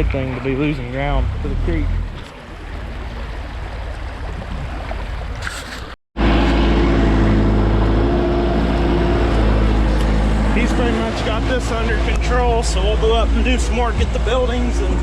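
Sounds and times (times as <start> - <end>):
loud engine drone: 6.2 - 15.0.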